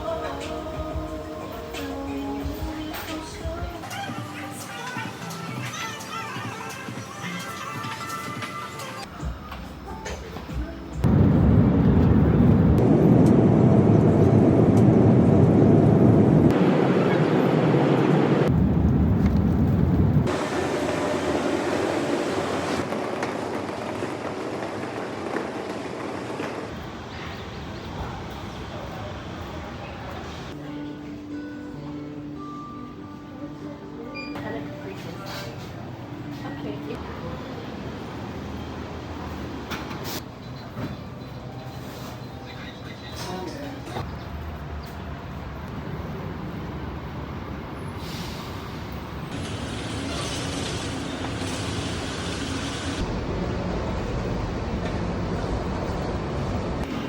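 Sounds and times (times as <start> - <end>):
airliner cabin noise in flight: 10.3 - 30.6
vehicle rumble and hiss: 44.5 - 57.0.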